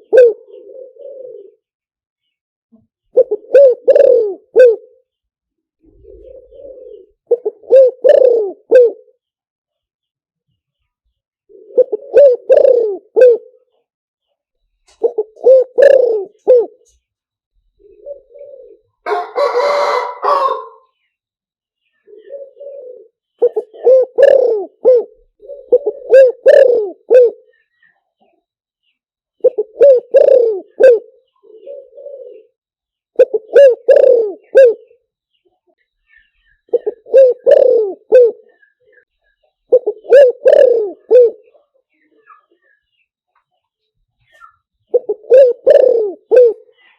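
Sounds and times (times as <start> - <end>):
dove cooing: 0.0 - 1.7, 3.1 - 5.1, 5.8 - 9.2, 11.5 - 13.7, 14.9 - 17.0, 17.8 - 20.9, 22.0 - 27.6, 29.4 - 35.0, 36.5 - 39.1, 39.7 - 42.6, 44.4 - 46.8.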